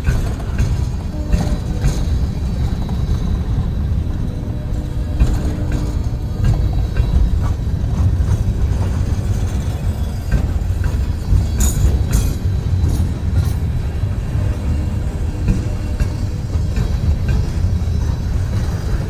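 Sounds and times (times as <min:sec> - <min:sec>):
clanks and knocks: 0:00.0 - 0:19.0
train rumbling: 0:00.0 - 0:19.0.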